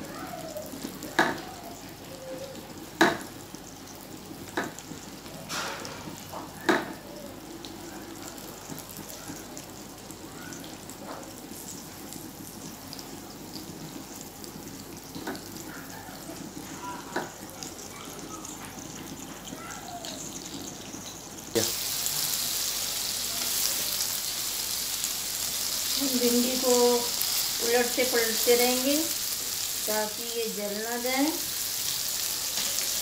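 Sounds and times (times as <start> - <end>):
vegetables sizzling in hot oil: 0.0 - 33.0.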